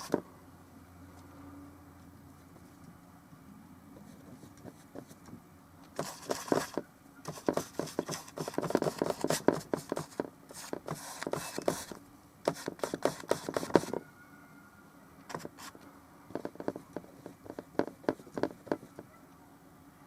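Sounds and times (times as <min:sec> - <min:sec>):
paintbrush dabbing and scrubbing: 0:06.0 - 0:14.0.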